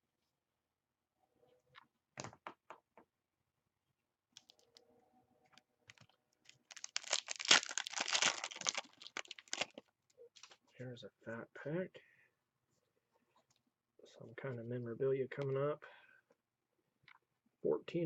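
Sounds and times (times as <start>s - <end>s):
foil wrapper tearing and crinkling: 6.6s - 9.8s.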